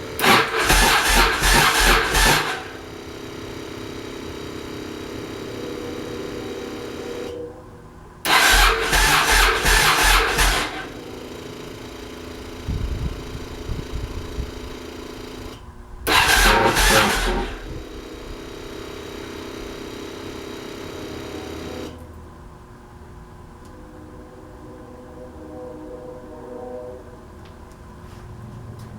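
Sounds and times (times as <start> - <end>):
motorcycle engine cranking and firing: 0.0 - 7.3, 8.3 - 22.0
steady engine hum: 0.0 - 28.9.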